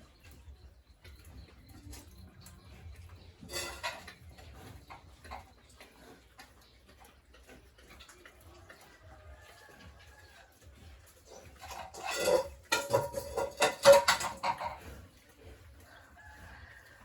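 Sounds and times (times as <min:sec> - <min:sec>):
knocks and clatter in pen: 0:01.0 - 0:05.6, 0:11.2 - 0:15.2.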